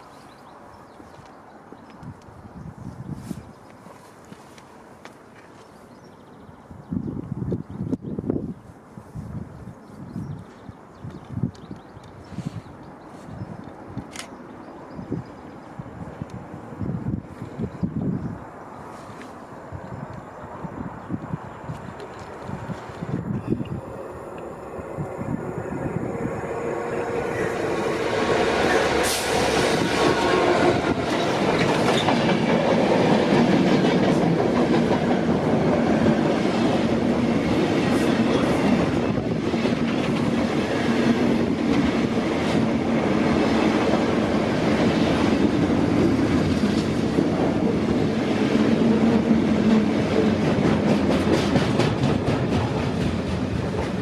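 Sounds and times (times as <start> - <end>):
train wagons clattering over rails: 26.9 - 54.0.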